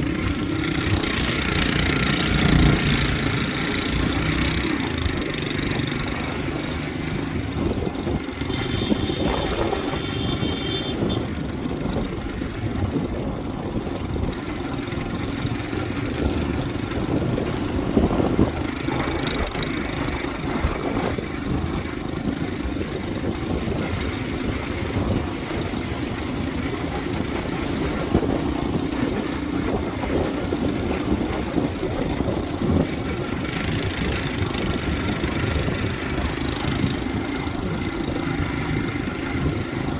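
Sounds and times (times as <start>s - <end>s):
motorbike engine and road noise: 0.0s - 39.9s.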